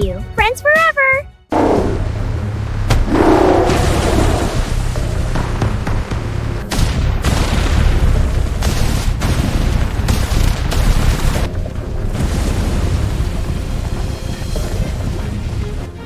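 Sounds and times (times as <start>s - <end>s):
loud explosion-like booms: 1.5s - 5.0s
heavy rumble: 1.5s - 6.7s.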